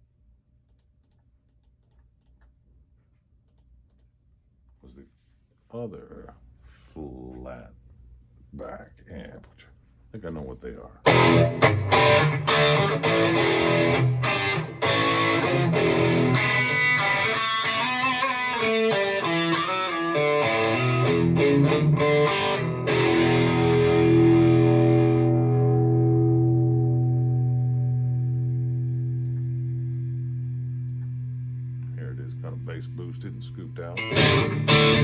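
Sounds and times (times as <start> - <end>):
distorted electric guitar riff: 11.1 - 35.0.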